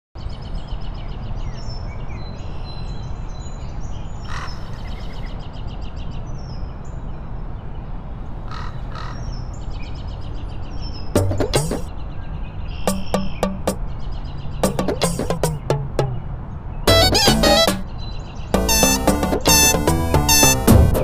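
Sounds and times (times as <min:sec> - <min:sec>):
birds chirping: 0:09.0 - 0:16.3, 0:16.9 - 0:21.0.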